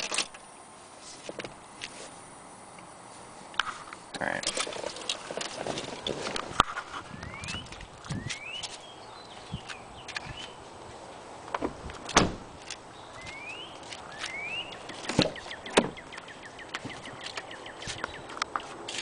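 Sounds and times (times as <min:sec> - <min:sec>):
car door clunking shut: 0:11.5 - 0:12.6, 0:14.9 - 0:16.1
door latch and handle clicks: 0:11.5 - 0:12.8.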